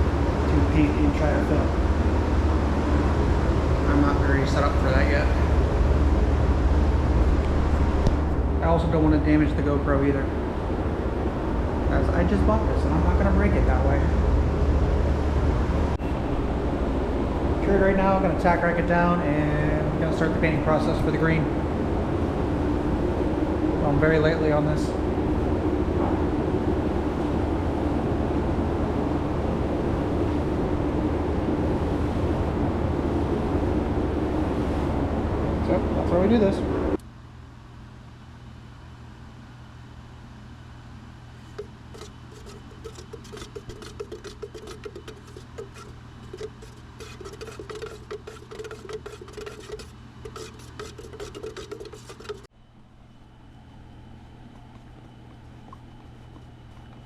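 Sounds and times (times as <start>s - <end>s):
background rumble with low hum: 0.0s - 57.0s
rapid rubbing and scratching: 41.5s - 52.5s.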